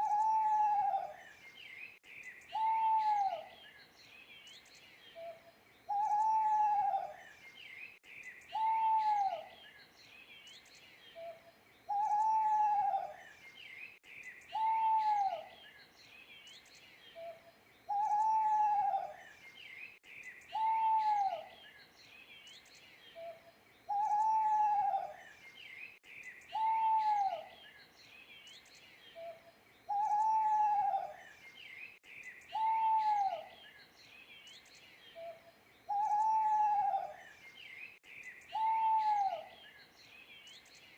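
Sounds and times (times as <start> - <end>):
owl hooting: 0.0 - 1.2, 2.5 - 3.5, 5.9 - 7.2, 8.5 - 9.5, 11.2 - 13.2, 14.5 - 15.5, 17.2 - 19.2, 20.5 - 21.5, 23.2 - 25.2, 26.5 - 27.5, 29.2 - 31.2, 32.5 - 33.6, 35.2 - 37.2, 38.5 - 39.6
small birds chirping: 0.0 - 40.9.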